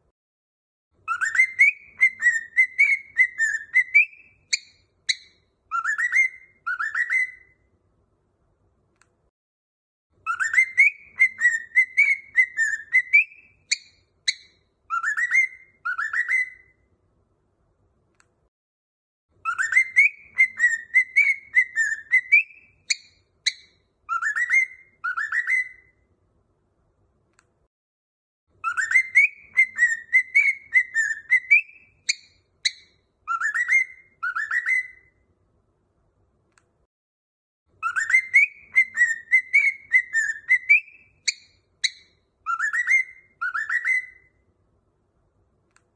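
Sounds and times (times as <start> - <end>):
cockatiel high chirps: 1.0 - 7.6, 10.2 - 16.8, 19.4 - 26.0, 28.6 - 35.2, 37.8 - 44.4
cockatiel whistling: 1.0 - 7.6, 10.2 - 16.8, 19.4 - 26.0, 28.6 - 35.2, 37.8 - 44.4.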